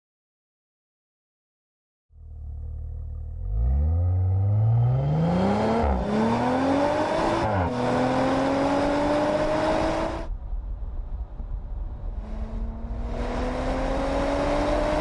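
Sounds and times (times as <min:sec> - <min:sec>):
car engine accelerating hard: 0:02.2 - 0:10.3, 0:12.1 - 0:15.0.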